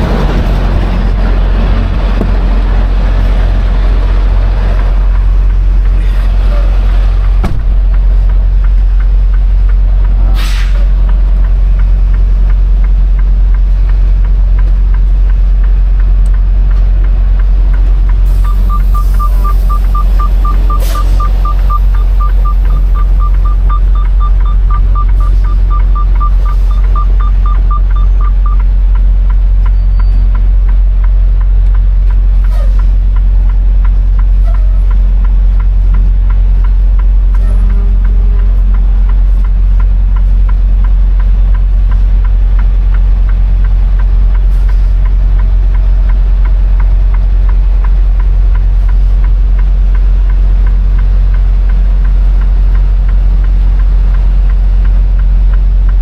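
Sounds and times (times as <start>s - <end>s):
diesel truck engine running: 0.0s - 56.0s
rapid high-pitched beeping: 18.4s - 28.6s.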